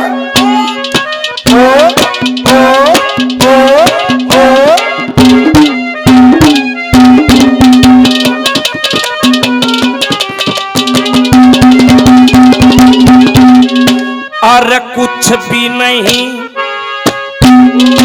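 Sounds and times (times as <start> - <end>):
hand drum quick strokes: 0.0 - 14.1, 17.1 - 18.0
reed instrument drone and melody: 0.0 - 18.0.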